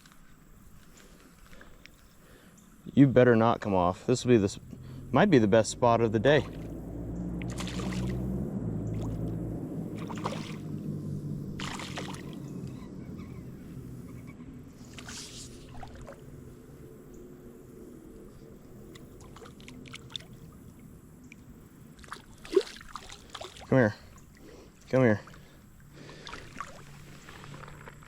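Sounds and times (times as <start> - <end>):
low rumble: 4.5 - 22.0
water splashing and sloshing: 6.3 - 13.0, 14.7 - 16.6, 18.5 - 28.0.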